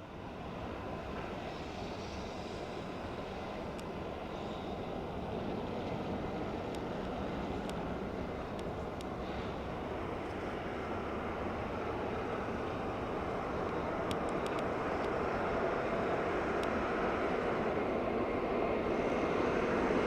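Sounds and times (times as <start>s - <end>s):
diesel locomotives rumbling past: 0.0s - 20.0s
faint sharp clicks: 13.7s - 15.2s.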